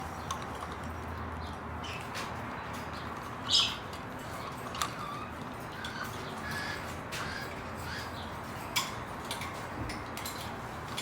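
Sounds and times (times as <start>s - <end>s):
parrots chirping and squawking: 3.3s - 9.6s.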